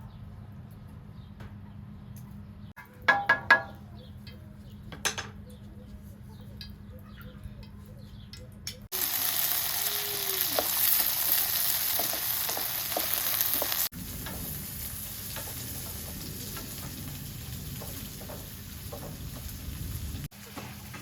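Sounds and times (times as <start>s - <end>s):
food sizzling in a pan: 8.9s - 21.0s.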